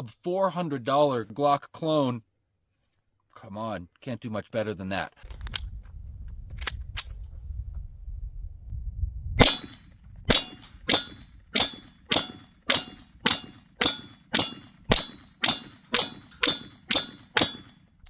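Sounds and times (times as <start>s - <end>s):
low rumble: 5.2s - 15.3s
pistol shots: 9.4s - 17.8s.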